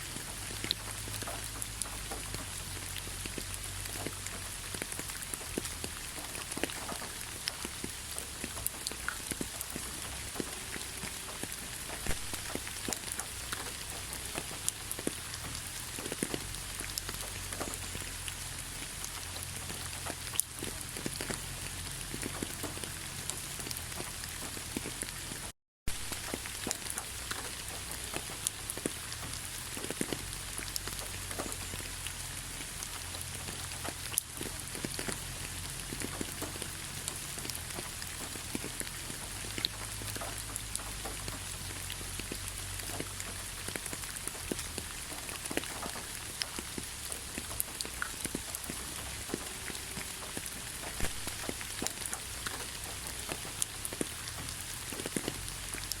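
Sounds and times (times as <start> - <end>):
rain falling: 0.0 - 56.0
raindrops ticking on a surface: 0.0 - 56.0.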